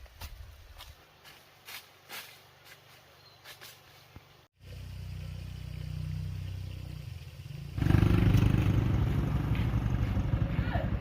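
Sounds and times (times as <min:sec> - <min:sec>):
small engine throbbing: 0:04.6 - 0:11.0.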